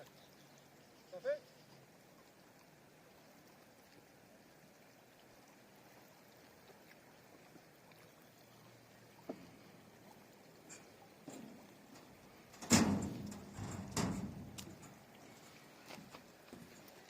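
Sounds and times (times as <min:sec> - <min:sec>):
faint river rushing: 0:00.0 - 0:17.0.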